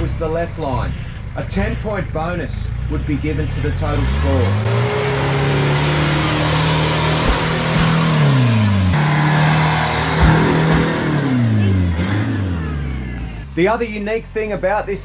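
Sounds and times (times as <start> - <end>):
engine revving under load: 2.7 - 13.6
brief thuds: 7.2 - 12.3.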